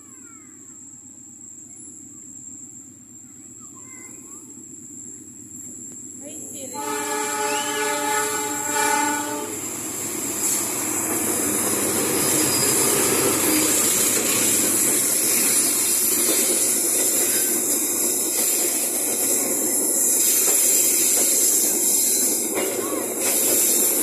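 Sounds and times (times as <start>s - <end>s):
train running on rails: 0.0s - 24.0s
train horn: 6.8s - 9.7s.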